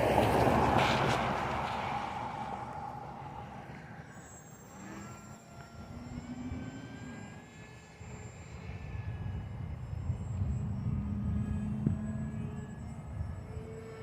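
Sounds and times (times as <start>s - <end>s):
rushing noise: 0.0s - 4.0s
model plane electric motor whine: 0.0s - 14.0s.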